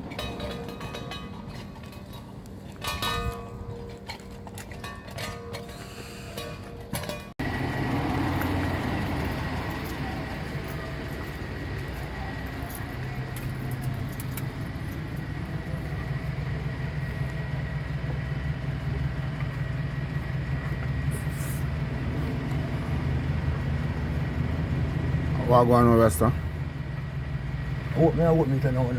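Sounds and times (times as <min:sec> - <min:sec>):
vehicle engine humming: 0:00.0 - 0:28.9.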